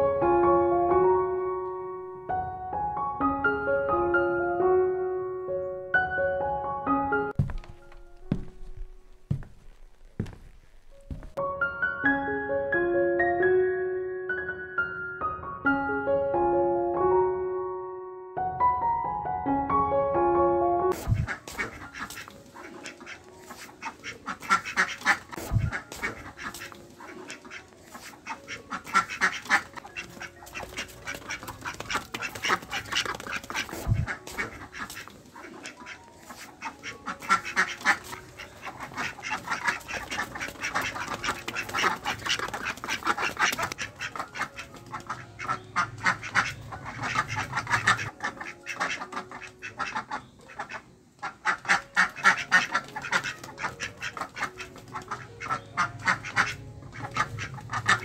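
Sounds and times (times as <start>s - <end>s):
ducks quacking: 20.9s - 58.0s.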